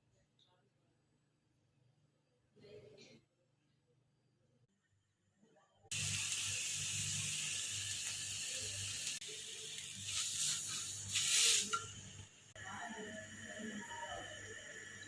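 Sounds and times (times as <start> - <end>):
steady hiss: 5.9 - 11.9.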